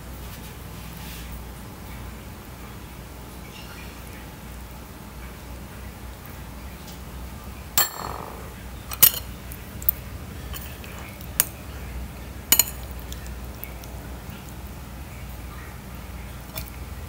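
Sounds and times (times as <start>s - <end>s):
spoon clinking on ceramic plates: 7.8s - 9.4s, 12.5s - 13.1s.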